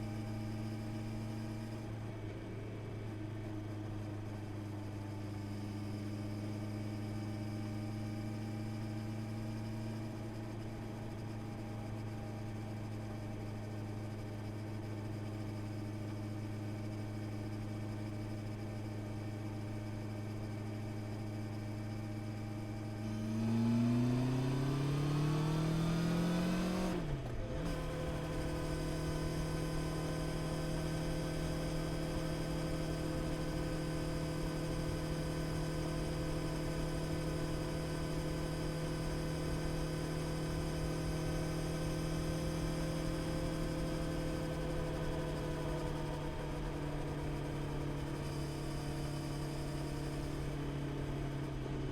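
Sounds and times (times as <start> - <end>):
motorcycle engine accelerating: 23.0 - 51.9.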